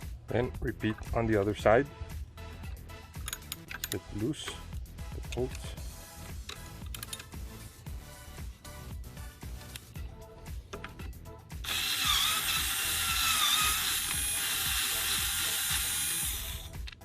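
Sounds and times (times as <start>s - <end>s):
background music: 0.0s - 17.0s
power driver whining: 11.6s - 17.0s
ratchet clicks: 11.6s - 17.0s.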